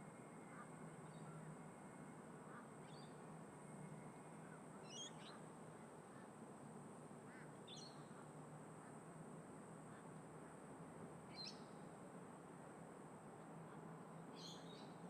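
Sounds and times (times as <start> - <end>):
faint bird calls: 4.4 - 6.3.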